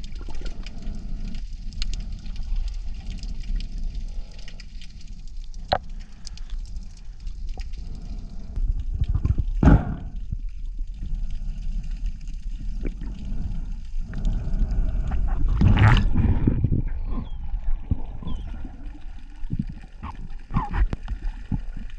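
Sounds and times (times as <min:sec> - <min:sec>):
underwater rumbling wash: 0:00.0 - 0:21.9
gurgling bursts: 0:12.6 - 0:21.9.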